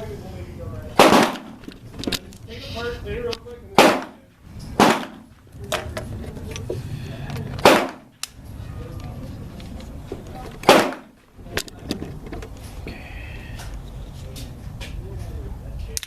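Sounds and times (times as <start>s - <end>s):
gunshots with echo: 1.0s - 1.6s, 3.8s - 5.3s, 7.6s - 8.1s, 10.6s - 11.2s
faint clicks and knocks: 9.0s - 12.8s.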